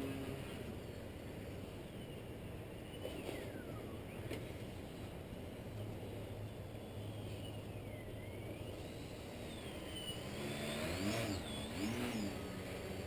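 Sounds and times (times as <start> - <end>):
rc plane electric motor whine: 8.6 - 13.0.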